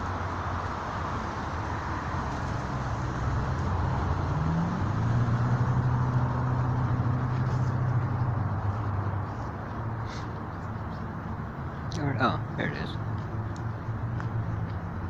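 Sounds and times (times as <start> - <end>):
traffic rushing: 0.0 - 15.0
vehicle engine running: 3.0 - 15.0.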